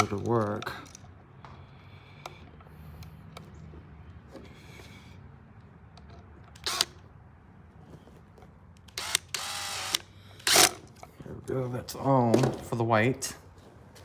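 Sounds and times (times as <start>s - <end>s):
screwdriver scraping clicks: 6.0s - 6.9s, 8.8s - 11.1s.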